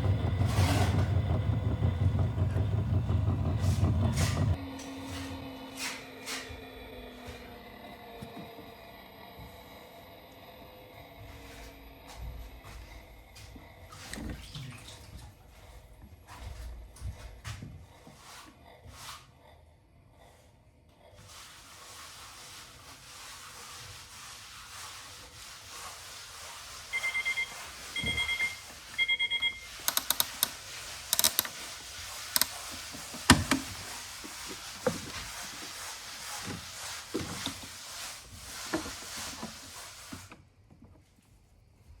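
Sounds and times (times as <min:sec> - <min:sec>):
low hum: 0:00.0 - 0:14.5
washing machine warbling beeps: 0:26.9 - 0:29.9
sharp clicks and knocks: 0:29.8 - 0:31.6.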